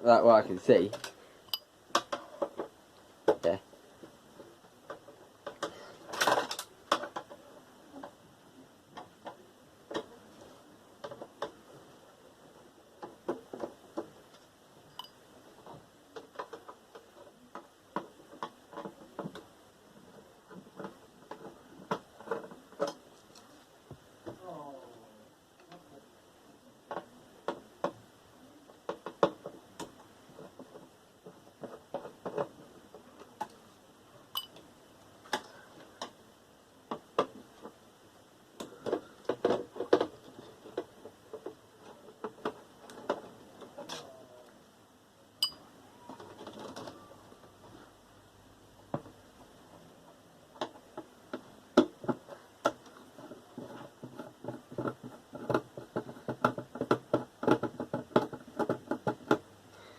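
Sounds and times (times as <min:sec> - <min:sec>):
metallic ring: 0:01.5 - 0:01.7, 0:14.9 - 0:15.2, 0:45.4 - 0:45.6.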